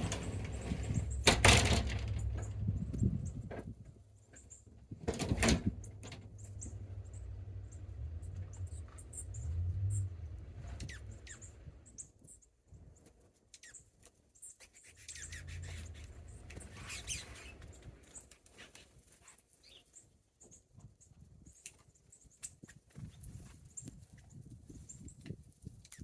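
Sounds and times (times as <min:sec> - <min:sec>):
low rumble: 0:00.0 - 0:03.6, 0:05.0 - 0:11.9
small birds chirping: 0:05.8 - 0:12.4, 0:13.6 - 0:17.8.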